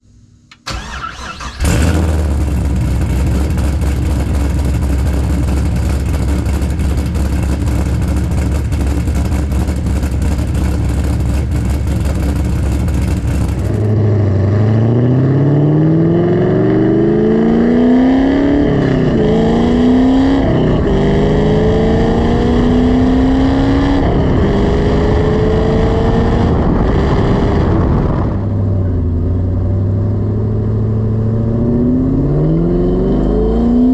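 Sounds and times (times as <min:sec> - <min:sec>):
engine starting: 0:00.5 - 0:02.4
engine accelerating through gears: 0:00.7 - 0:33.9
lumpy engine idle: 0:02.4 - 0:13.7.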